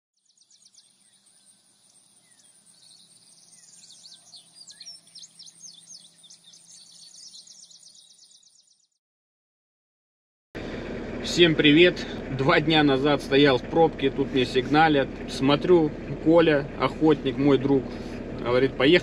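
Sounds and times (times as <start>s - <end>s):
faint birdsong: 0.2s - 9.0s.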